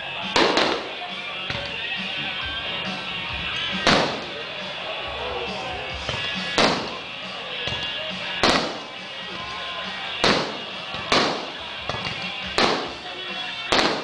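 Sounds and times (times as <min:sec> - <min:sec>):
steady music: 0:00.0 - 0:14.0
fireworks shells bursting: 0:00.2 - 0:01.8, 0:03.6 - 0:04.5, 0:06.0 - 0:14.0.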